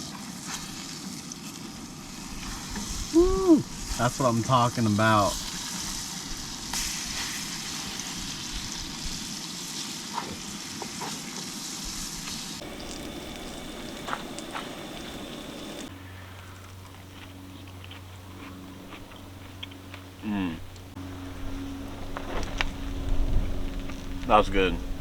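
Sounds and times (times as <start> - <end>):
tomatoes sizzling in a frying pan: 0.0 - 15.9
small pops: 12.6 - 15.9
steady low hum: 12.6 - 15.9.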